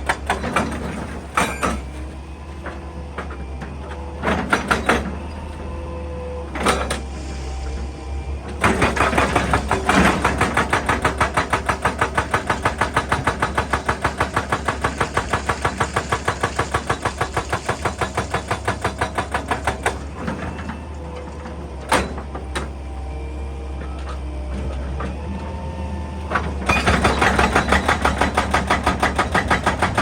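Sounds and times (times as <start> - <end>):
hydraulic breaker hammering rock: 0.0 - 2.0, 8.6 - 20.4, 26.6 - 30.0.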